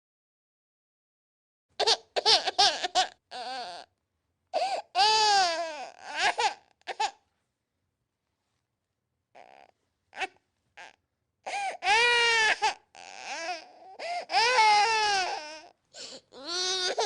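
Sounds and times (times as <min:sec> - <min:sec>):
infant crying: 0:01.8 - 0:03.9, 0:04.5 - 0:07.2, 0:09.3 - 0:17.0.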